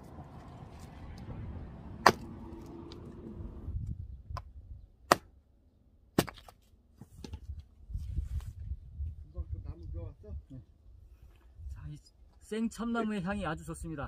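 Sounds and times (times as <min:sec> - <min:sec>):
hatchet chopping wood: 0:02.0 - 0:02.4, 0:04.4 - 0:05.4, 0:06.1 - 0:06.6.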